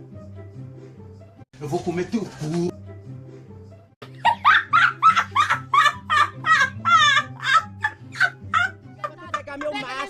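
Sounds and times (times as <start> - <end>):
high-pitched laughter: 4.2 - 10.0.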